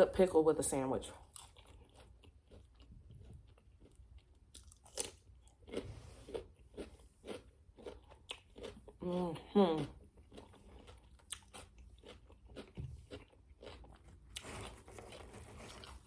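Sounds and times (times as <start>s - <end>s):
crunchy food chewing: 1.2s - 16.0s.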